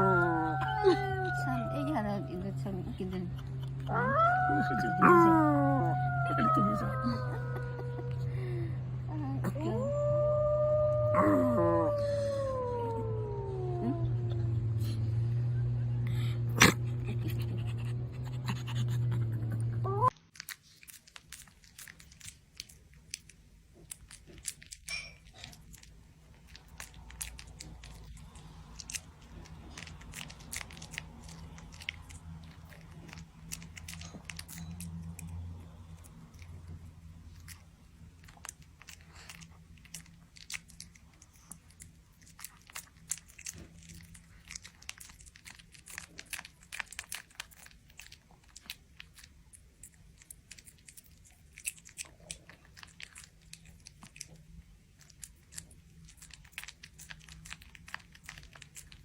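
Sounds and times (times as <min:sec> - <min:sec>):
animal crunching food: 0:00.0 - 0:08.3, 0:16.6 - 0:59.0
steady low hum: 0:00.0 - 0:20.2.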